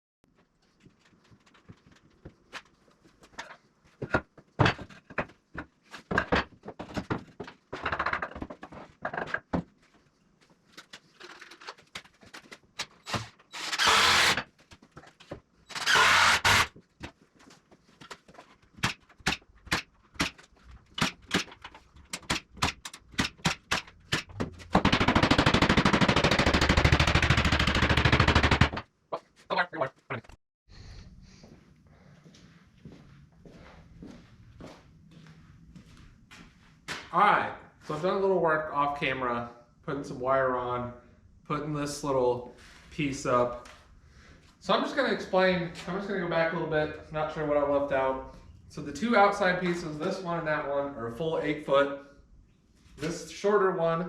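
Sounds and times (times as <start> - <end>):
wooden boards and tools knocking: 3.4 - 9.8, 18.0 - 27.0
power tool bursts: 13.1 - 14.4, 15.7 - 16.7.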